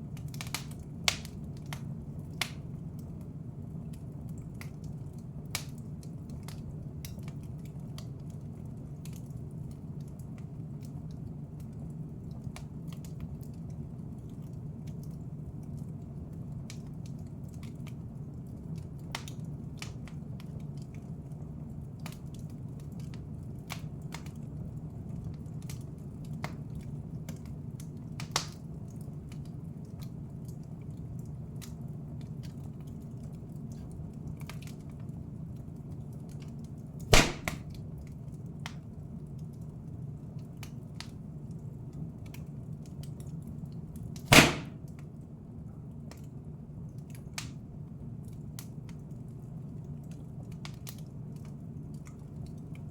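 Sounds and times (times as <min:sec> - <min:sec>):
fire low rumble: 0:00.0 - 0:52.9
wood fire crackling: 0:00.0 - 0:52.9
loud sharp pops: 0:37.1 - 0:37.8, 0:44.2 - 0:44.9.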